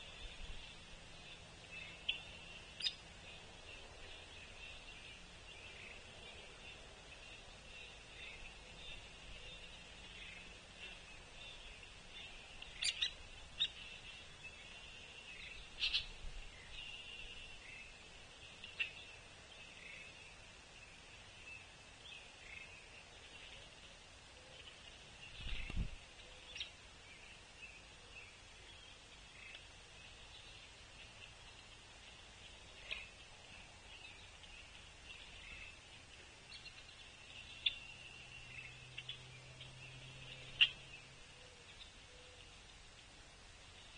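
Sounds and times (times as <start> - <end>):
high-pitched bird calling: 15.8 - 16.2.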